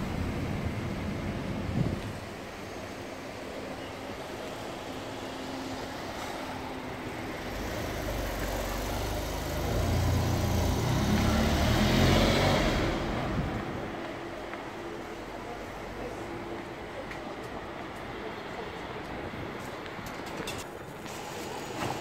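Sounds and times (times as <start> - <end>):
road noise: 0.0 - 22.0
car engine: 4.3 - 13.8.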